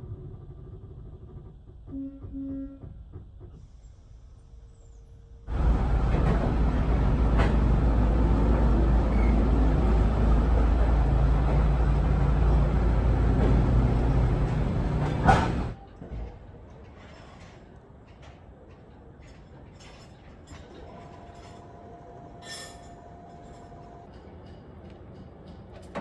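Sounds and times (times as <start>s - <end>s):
train rumbling and rattling: 0.0s - 4.0s, 5.4s - 26.0s.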